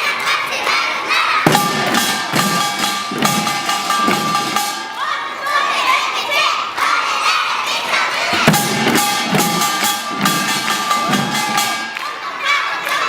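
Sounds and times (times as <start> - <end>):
children shouting: 0.0 - 13.0
drum strokes: 1.4 - 5.0, 8.3 - 12.2
small gong strokes ringing: 1.5 - 5.0, 8.5 - 12.0.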